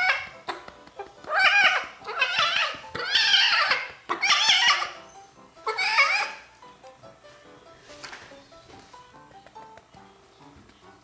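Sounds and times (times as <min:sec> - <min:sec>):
kitten meowing: 0:01.3 - 0:05.0.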